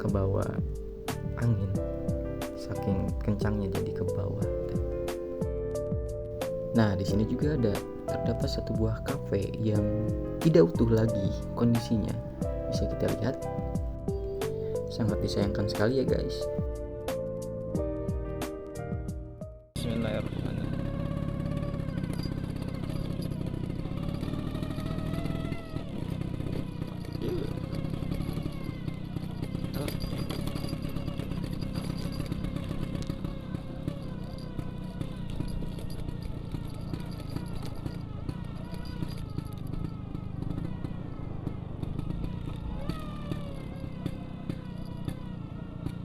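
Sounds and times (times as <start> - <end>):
light rattles and clicks: 0.0 - 5.7, 6.3 - 17.5, 24.1 - 40.7
scooter engine running: 0.0 - 46.0.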